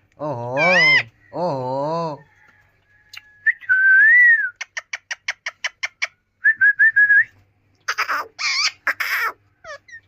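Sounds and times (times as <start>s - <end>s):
parrot screeching: 0.6s - 1.2s, 7.9s - 10.0s.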